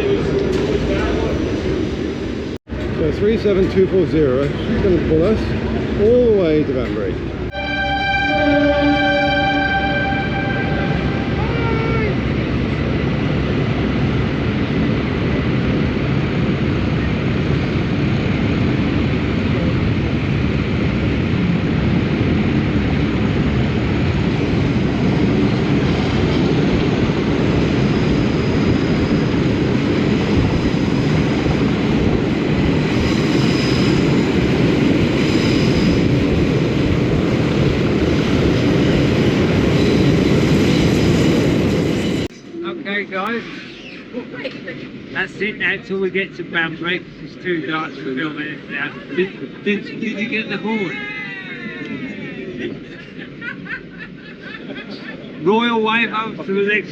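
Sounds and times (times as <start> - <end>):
diesel locomotive engine drone: 0.0 - 56.9.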